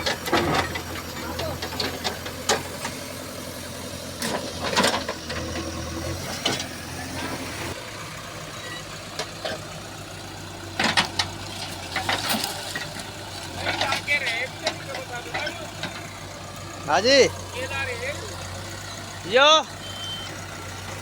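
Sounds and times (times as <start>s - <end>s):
sharp knocks and clatters: 0.0s - 3.0s, 10.8s - 16.1s
vehicle engine idling: 0.0s - 21.0s.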